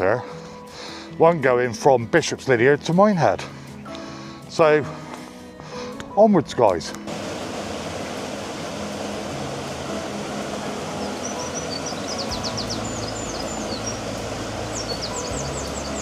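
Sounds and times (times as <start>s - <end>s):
low hum: 7.1s - 16.0s
songbird chirping: 10.0s - 16.0s.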